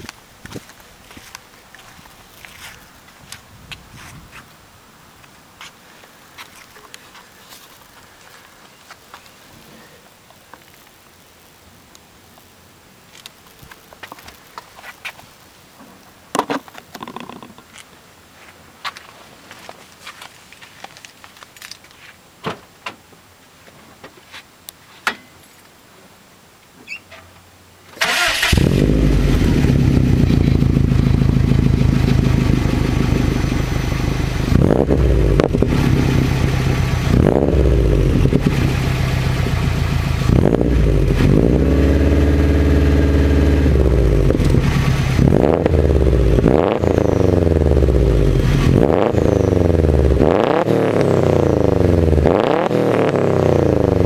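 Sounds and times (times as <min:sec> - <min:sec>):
car engine revving: 0:28.1 - 0:54.0.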